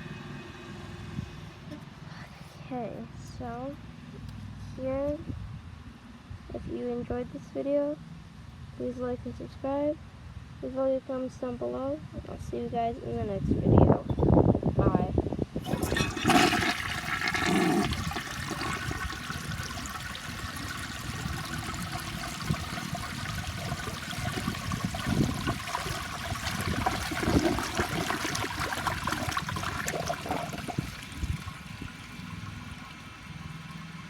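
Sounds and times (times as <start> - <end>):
running and gurgling water: 15.6 - 34.0
toilet flushing: 15.6 - 34.0.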